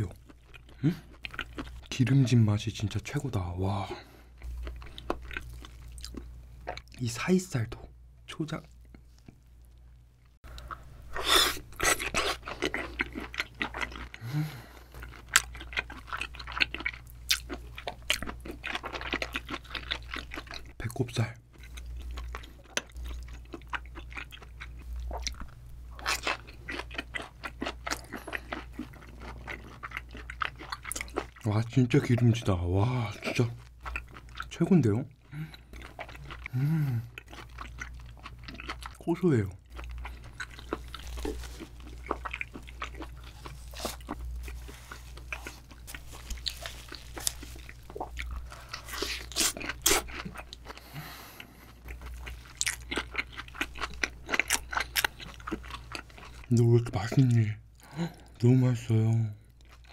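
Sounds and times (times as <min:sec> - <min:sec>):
low steady hum: 0:00.0 - 0:59.9
wet crunchy chewing: 0:10.5 - 0:14.3, 0:14.9 - 0:20.8, 0:21.6 - 0:34.6, 0:35.2 - 0:58.4.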